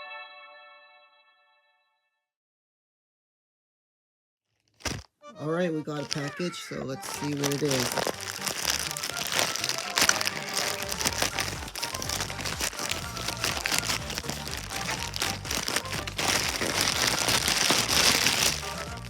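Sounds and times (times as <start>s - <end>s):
packaging crinkling and tearing: 4.7s - 5.1s, 5.9s - 19.0s
background music: 5.2s - 19.0s.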